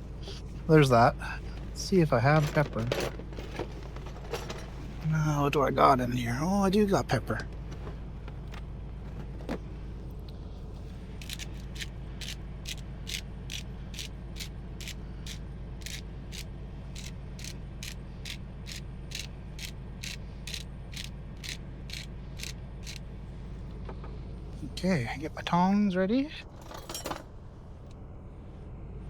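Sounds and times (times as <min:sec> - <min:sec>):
pepper grinder clicking: 0:11.2 - 0:16.4, 0:17.0 - 0:23.0.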